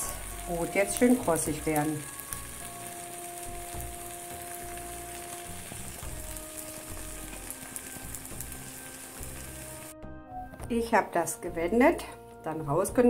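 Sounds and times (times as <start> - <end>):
omelette sizzling in a pan: 0.0 - 9.9.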